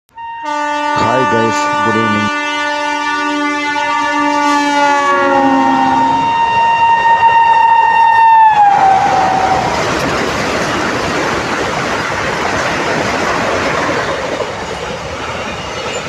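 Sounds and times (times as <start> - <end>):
train horn: 0.1 - 9.7
train coaches clattering: 8.8 - 16.0.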